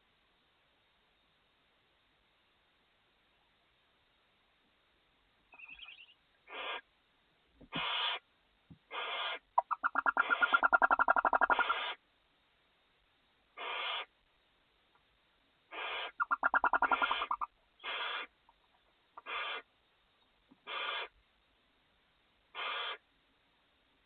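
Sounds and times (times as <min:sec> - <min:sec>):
owl pulsed chittering call: 0:05.5 - 0:06.8, 0:07.7 - 0:08.2, 0:08.9 - 0:12.0, 0:13.6 - 0:14.1, 0:15.7 - 0:18.4, 0:19.2 - 0:19.7, 0:20.6 - 0:21.2, 0:22.5 - 0:23.0
owls hissing screech calls: 0:05.6 - 0:06.8, 0:07.7 - 0:08.2, 0:08.9 - 0:12.0, 0:13.6 - 0:14.1, 0:15.7 - 0:18.4, 0:19.2 - 0:19.7, 0:20.6 - 0:21.2, 0:22.5 - 0:23.0.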